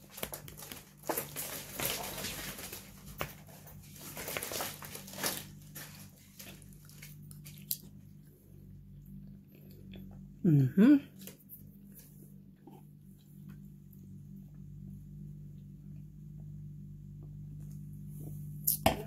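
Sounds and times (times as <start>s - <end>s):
faint low hum: 0.0s - 19.0s
person chewing food: 5.1s - 10.4s.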